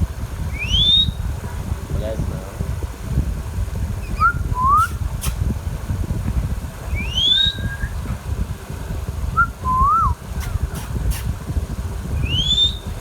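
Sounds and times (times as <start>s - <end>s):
steady low rumble: 0.0s - 13.0s
parrot whistling: 0.5s - 1.2s, 4.0s - 5.0s, 6.9s - 8.0s, 9.4s - 11.2s, 12.2s - 12.9s.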